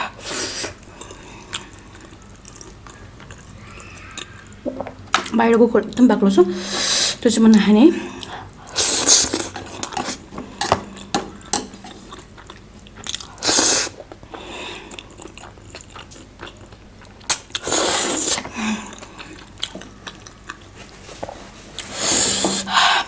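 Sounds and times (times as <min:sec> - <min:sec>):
biting and chewing food: 0:08.2 - 0:21.0.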